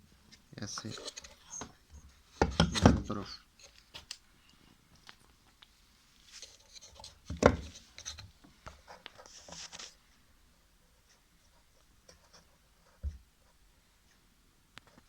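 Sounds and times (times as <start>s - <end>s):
scraping rustle: 0.6s - 2.1s, 6.1s - 10.0s.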